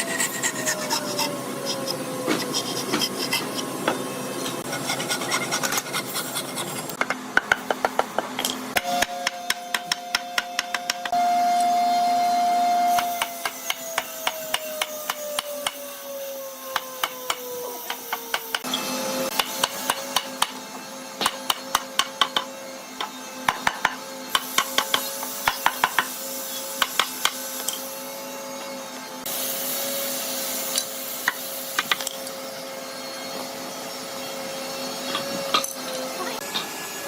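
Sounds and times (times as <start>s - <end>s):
woodworking machine humming: 0.0s - 5.4s.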